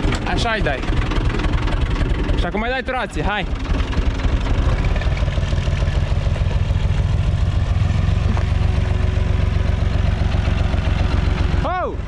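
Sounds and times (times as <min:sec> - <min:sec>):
tractor diesel engine chugging: 0:00.0 - 0:12.0.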